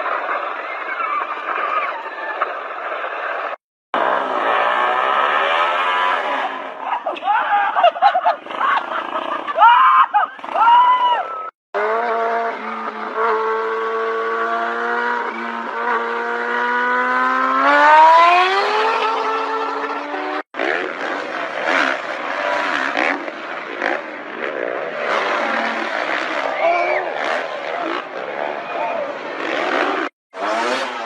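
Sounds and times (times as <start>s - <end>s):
motorcycle engine revving: 3.3s - 6.9s, 8.1s - 9.7s, 10.3s - 31.0s
rising and falling cries: 6.1s - 11.6s.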